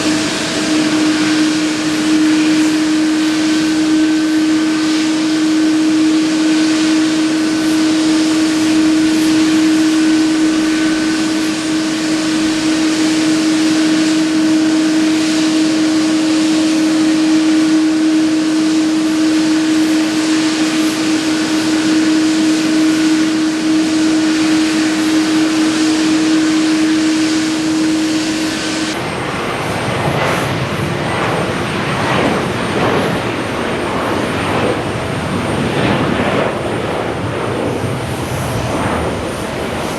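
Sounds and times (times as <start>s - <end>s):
thin high whistle: 0.0s - 29.0s
jet engines humming with whine: 0.0s - 39.9s
rough fluctuating engine noise: 0.0s - 39.9s.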